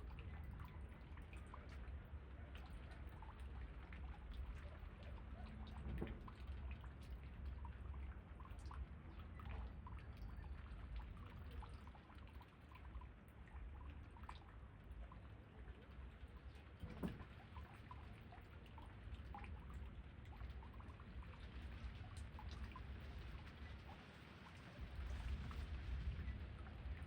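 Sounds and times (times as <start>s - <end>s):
faint steady rain: 0.0s - 27.0s
low wind rumble: 19.6s - 27.0s.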